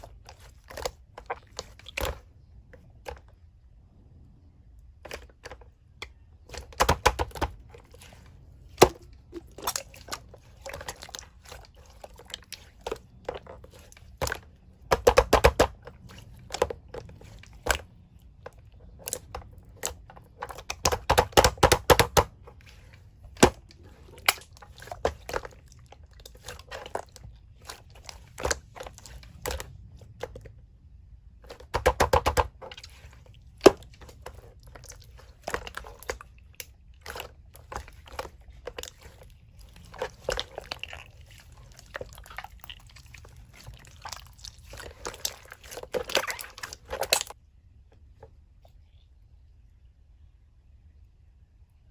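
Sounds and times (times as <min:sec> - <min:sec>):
slime squished by hand: 0:05.0 - 0:30.4, 0:31.4 - 0:47.4.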